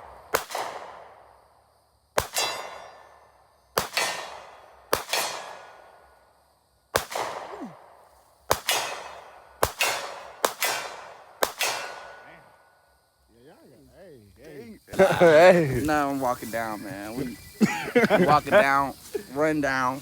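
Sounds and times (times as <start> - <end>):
pistol shots echoing: 0.0 - 1.2, 2.2 - 3.2, 3.8 - 5.9, 6.9 - 12.4
bullets ringing on steel target: 2.3 - 3.0.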